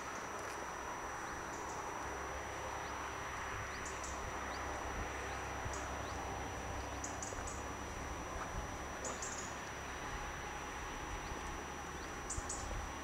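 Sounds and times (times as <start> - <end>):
outdoor hiss and rumble: 0.0 - 13.0
small birds chirping: 3.6 - 7.7, 9.0 - 9.8, 11.1 - 12.9.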